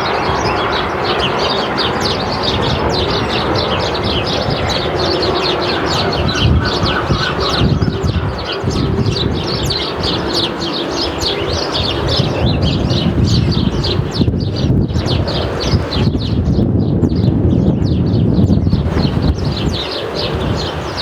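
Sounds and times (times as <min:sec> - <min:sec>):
sparrows chirping: 0:00.0 - 0:21.0.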